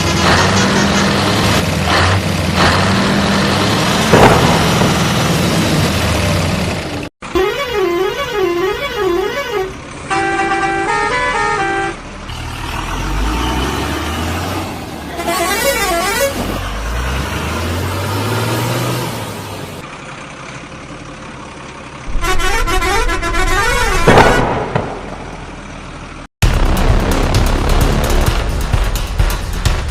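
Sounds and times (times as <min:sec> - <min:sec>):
truck engine rumble: 0:00.0 - 0:29.9
musical truck horn: 0:07.2 - 0:12.0, 0:15.1 - 0:16.6, 0:22.1 - 0:24.5
warbling horn blasts: 0:07.2 - 0:12.0, 0:15.2 - 0:16.5, 0:22.1 - 0:24.5.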